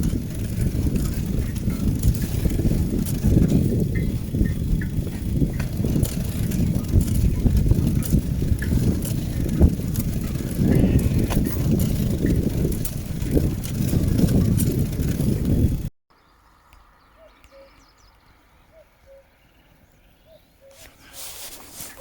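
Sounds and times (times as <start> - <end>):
bicycle rattles and knocks: 0.0 - 15.9, 20.8 - 22.0
wind rumble on microphone: 0.0 - 15.9.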